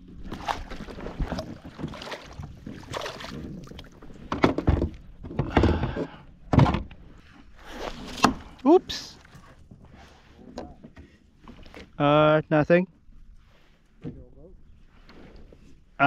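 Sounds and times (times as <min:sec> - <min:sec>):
knocks and thumps on boat hull: 0:04.2 - 0:07.0.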